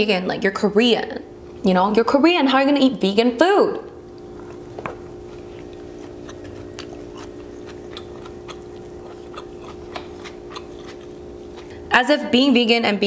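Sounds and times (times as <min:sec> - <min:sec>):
steady low hum: 0:00.0 - 0:13.0
person chewing food: 0:04.0 - 0:11.9.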